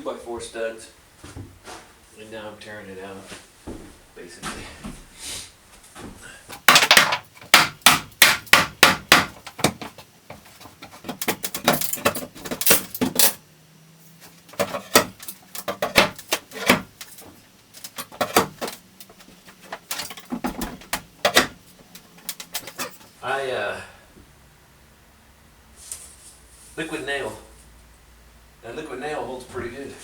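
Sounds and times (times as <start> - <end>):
hammer striking wood: 6.6 - 9.9, 14.9 - 16.9.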